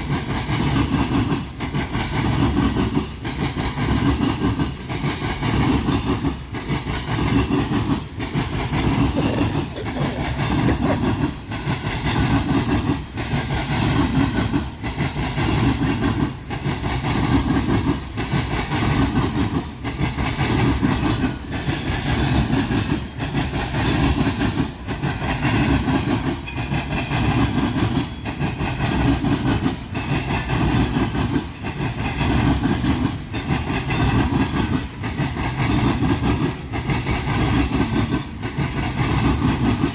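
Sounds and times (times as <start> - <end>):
train rumble: 0.0 - 39.9
train wheels clattering: 0.0 - 39.9.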